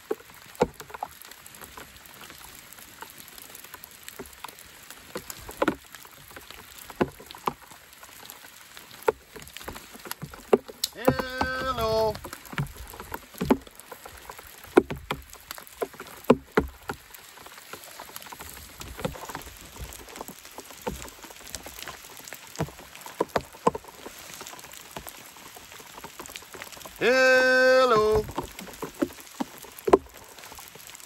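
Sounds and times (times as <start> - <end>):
raindrops tapping: 0.0 - 31.0
faint steady hiss: 26.9 - 28.8.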